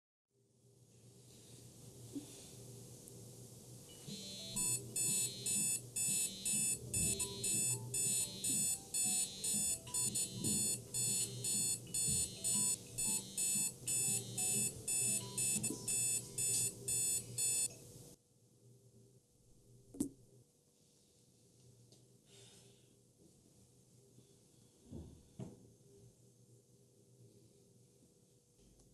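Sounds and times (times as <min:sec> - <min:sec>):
electronic alarm beeping: 0:04.1 - 0:17.7.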